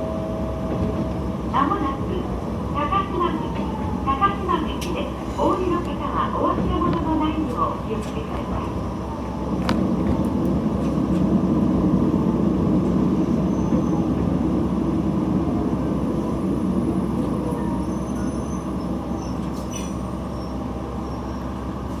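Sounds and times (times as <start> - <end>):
railcar rumbling along track: 0.0 - 22.0.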